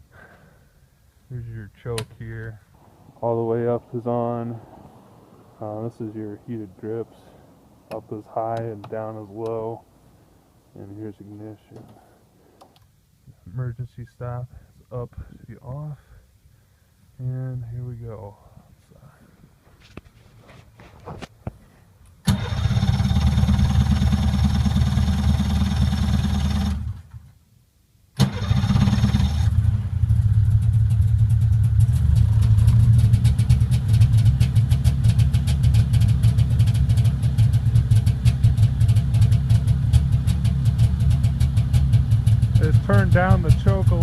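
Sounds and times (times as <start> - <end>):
snowmobile engine starting and running: 22.2 - 27.3, 28.2 - 44.0.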